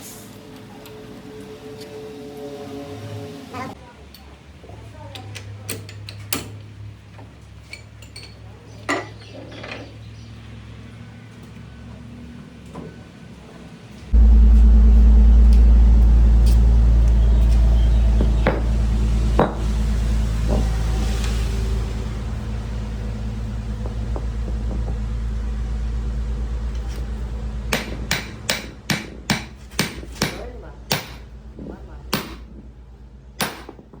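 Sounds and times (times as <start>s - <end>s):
loud machine rumble: 0.3s - 3.8s, 14.1s - 29.7s
low steady hum: 14.1s - 29.7s.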